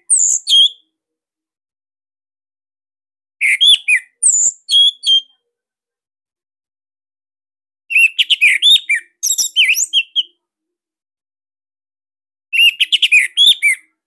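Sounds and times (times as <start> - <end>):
thrush singing whistled phrases: 0.0 - 0.8, 3.4 - 5.4, 7.9 - 10.4, 12.5 - 14.0.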